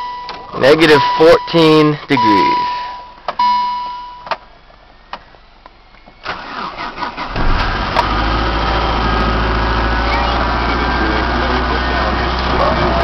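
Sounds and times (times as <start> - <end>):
car engine cranking and starting: 6.1 - 13.0.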